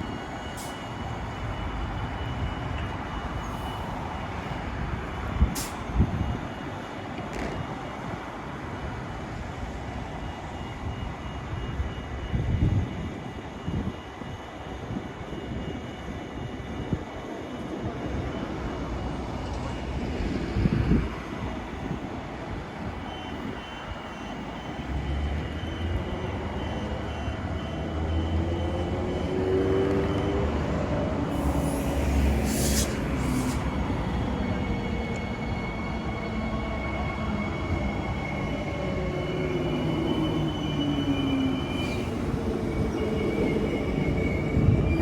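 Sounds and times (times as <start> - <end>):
train low rumble: 0.0 - 45.0
short hiss: 31.4 - 33.7.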